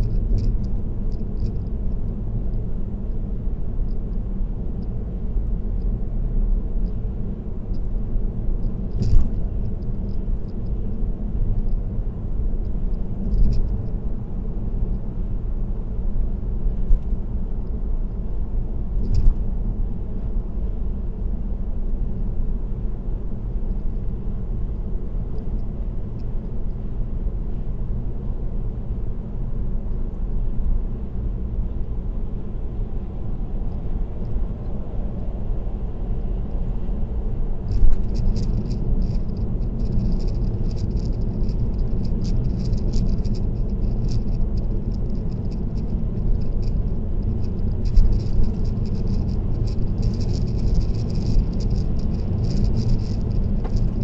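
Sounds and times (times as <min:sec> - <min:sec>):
car road and tyre noise: 0:00.0 - 0:54.0
light rattling: 0:37.7 - 0:54.0
sharp ticks: 0:37.7 - 0:54.0.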